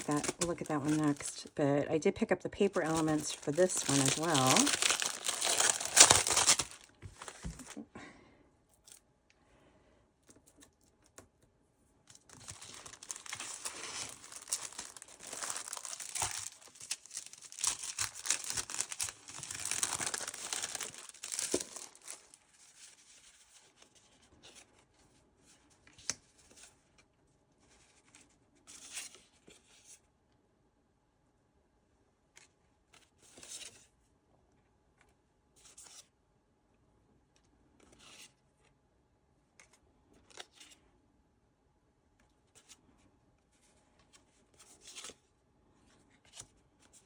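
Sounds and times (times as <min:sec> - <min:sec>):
paper crinkling and rustling: 0:00.0 - 0:01.5, 0:02.6 - 0:07.8, 0:12.1 - 0:25.0, 0:46.1 - 0:47.0
paper tearing: 0:02.8 - 0:07.7, 0:12.3 - 0:22.4.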